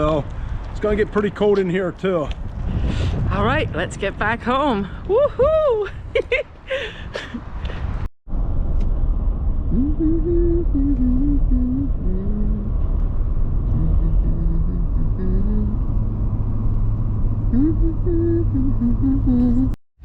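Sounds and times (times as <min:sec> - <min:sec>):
car engine rumbling: 0:07.4 - 0:19.8.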